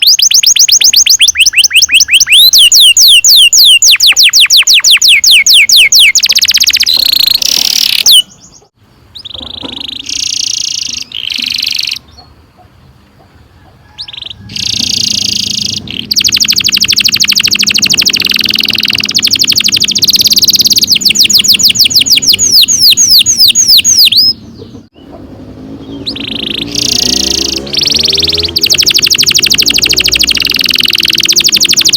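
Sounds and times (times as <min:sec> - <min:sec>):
canary singing trills: 0:00.0 - 0:31.9.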